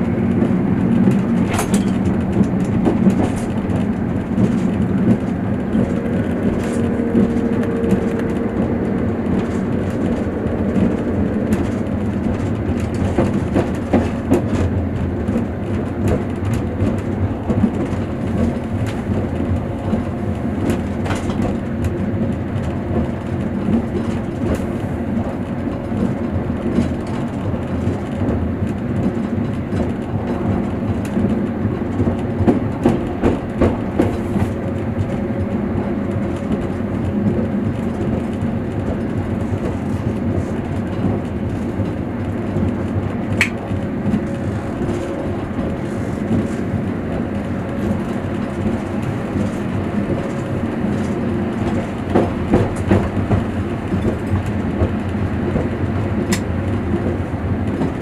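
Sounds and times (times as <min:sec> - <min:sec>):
train wheels rumbling on rail: 0:00.0 - 0:58.0
sharp clicks and knocks: 0:00.3 - 0:24.7, 0:37.3 - 0:58.0.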